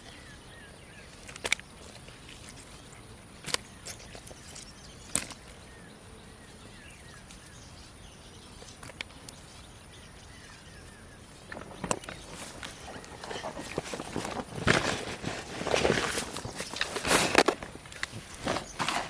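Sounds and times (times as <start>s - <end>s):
small chirping calls: 0.0s - 14.3s.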